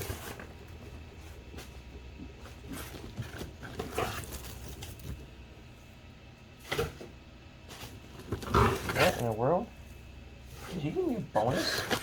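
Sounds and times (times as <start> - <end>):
cardboard packing rustling: 0.0 - 5.4.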